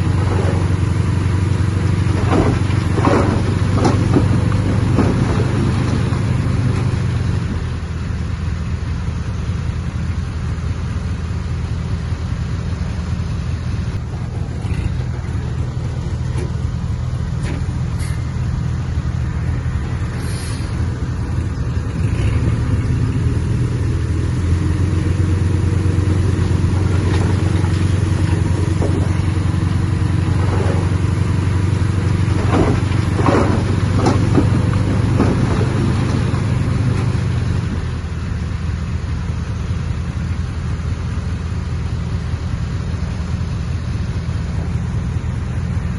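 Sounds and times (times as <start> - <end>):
heavy diesel machinery engine drone: 0.0 - 45.9
sharp knocks: 2.0 - 6.2, 32.2 - 37.1.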